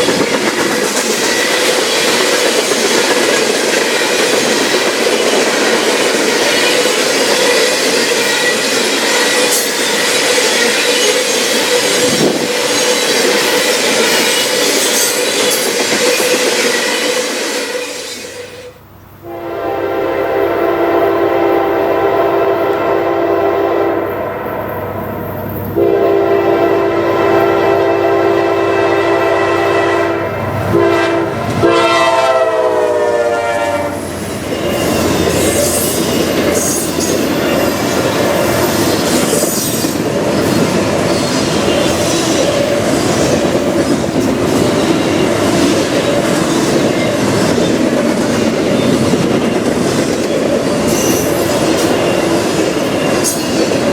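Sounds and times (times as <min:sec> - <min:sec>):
train wheels on rails: 0:00.0 - 0:19.2, 0:24.0 - 0:53.9
train horn sounding a chord: 0:18.1 - 0:34.1.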